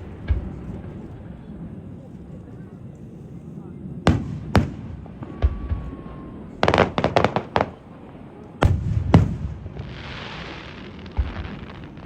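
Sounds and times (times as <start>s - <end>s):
fireworks crackling: 0.0s - 1.5s, 4.1s - 12.0s
loud firework booms: 0.0s - 1.6s, 4.1s - 12.0s
firework bangs: 4.1s - 12.0s.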